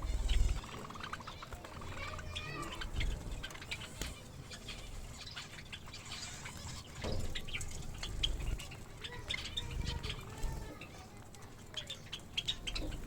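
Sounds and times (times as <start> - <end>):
finches chirping: 0.0 - 13.0.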